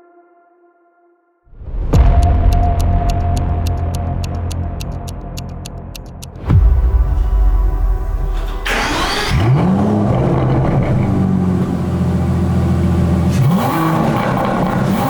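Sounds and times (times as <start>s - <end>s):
car engine starting and revving: 6.4s - 15.0s.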